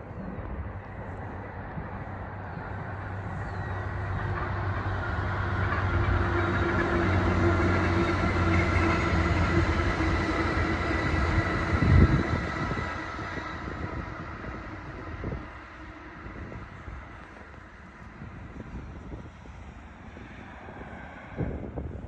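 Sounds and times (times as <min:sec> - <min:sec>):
small truck engine running: 0:00.0 - 0:18.6.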